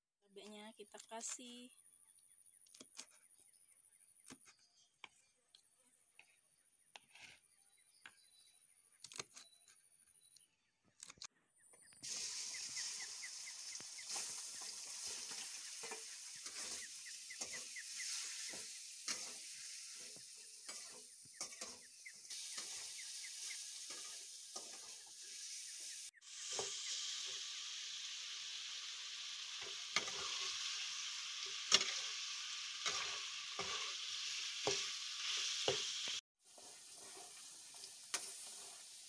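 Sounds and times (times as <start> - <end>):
chicken sizzling in oil: 12.0 - 39.0
metal spatula scraping pan: 14.1 - 25.6, 29.6 - 30.8, 32.8 - 39.0.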